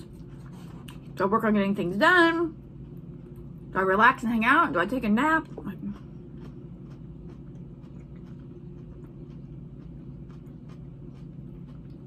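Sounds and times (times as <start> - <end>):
person chewing salad: 0.0 - 1.2, 5.4 - 12.0
low background hum: 0.0 - 12.0.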